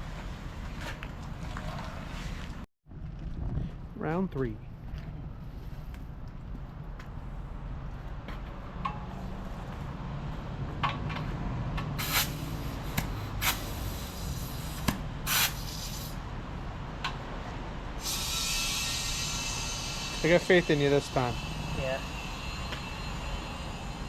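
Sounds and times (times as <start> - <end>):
compressed air hissing: 12.0 - 16.2, 18.0 - 24.0.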